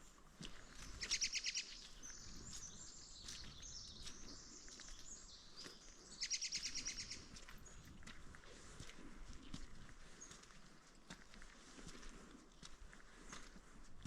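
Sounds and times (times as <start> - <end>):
songbird trilling: 0.9 - 7.8.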